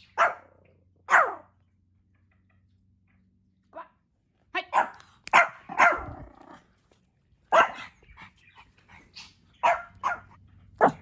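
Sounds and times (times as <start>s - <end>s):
small dog barking: 0.1s - 1.5s, 4.7s - 6.4s, 7.5s - 7.9s, 9.6s - 11.0s.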